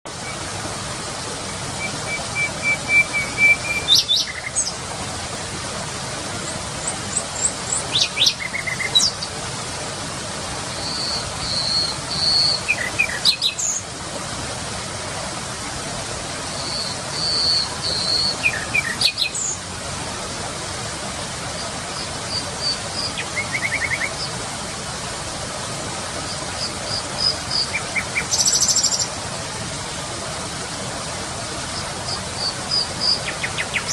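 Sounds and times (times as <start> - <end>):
nightingale singing: 1.8 - 4.7, 10.8 - 13.7, 16.6 - 19.5.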